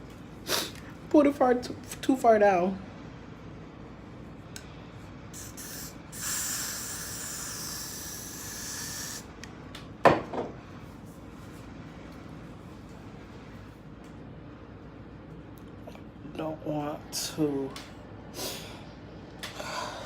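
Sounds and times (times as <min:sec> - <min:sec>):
aerosol spray can hissing: 0:05.4 - 0:09.3.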